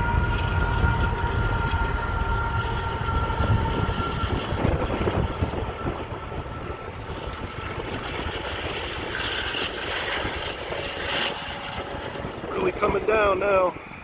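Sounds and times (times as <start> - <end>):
steady high tones from train: 0.0 - 7.8
train rumble: 0.0 - 14.0
wind buffeting microphone: 0.0 - 14.0.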